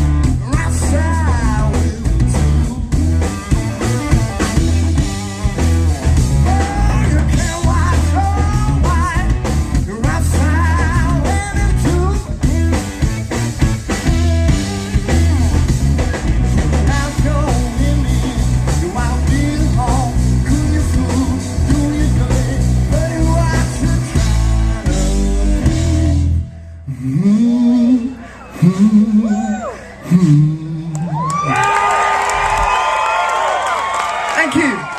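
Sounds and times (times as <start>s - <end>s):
blues-rock band playing: 0.0s - 26.6s
electric lead guitar: 0.0s - 26.7s.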